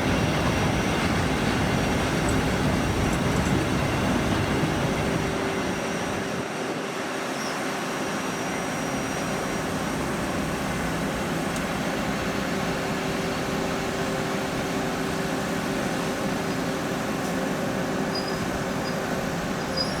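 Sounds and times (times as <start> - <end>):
train wheel and rail noise: 0.0 - 20.0.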